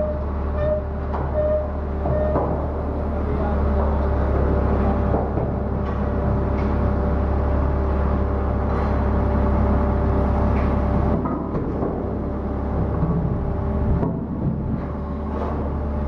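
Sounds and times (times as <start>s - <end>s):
anchor windlass mechanical hum: 0.0s - 16.0s.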